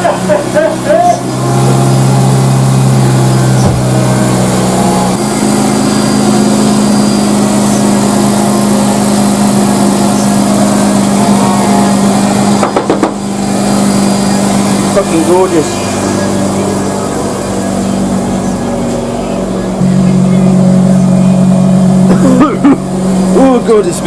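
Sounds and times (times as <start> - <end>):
rotary engine running: 0.0 - 24.0
sharp knocks: 12.6 - 13.2.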